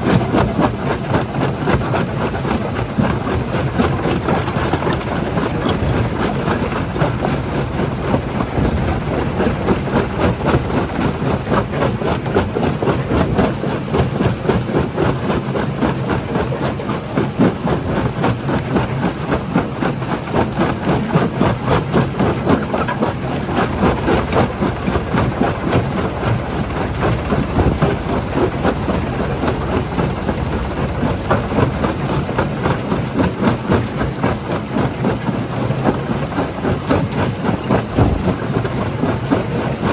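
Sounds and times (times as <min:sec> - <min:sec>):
engine drone: 0:00.0 - 0:39.9
rock crushing clatter: 0:37.7 - 0:39.2.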